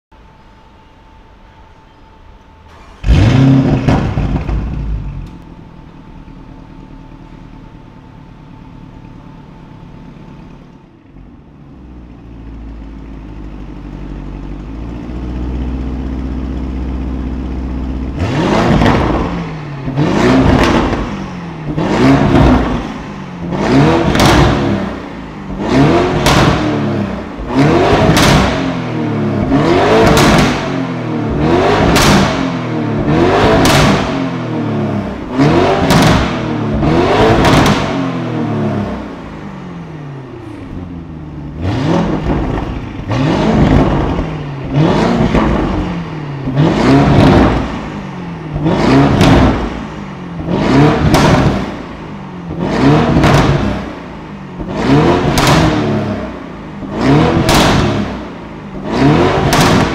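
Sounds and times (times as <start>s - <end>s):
engine revving: 2.7s - 5.6s, 18.1s - 59.9s
loud burst: 35.2s - 38.2s, 59.3s - 59.9s.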